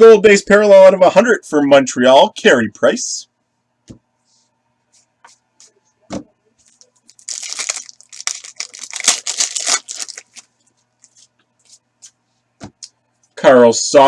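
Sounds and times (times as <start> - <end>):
soft thump: 6.1 - 6.3
foil wrapper tearing and crinkling: 7.0 - 10.5.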